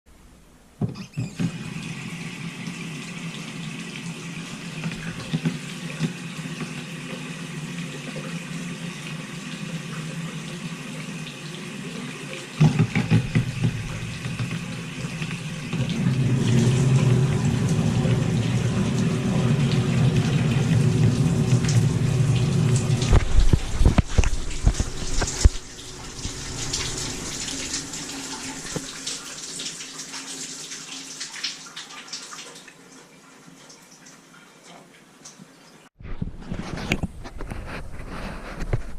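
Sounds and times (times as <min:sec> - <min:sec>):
faucet running into sink: 0:00.8 - 0:34.2
knocks: 0:12.6 - 0:15.4.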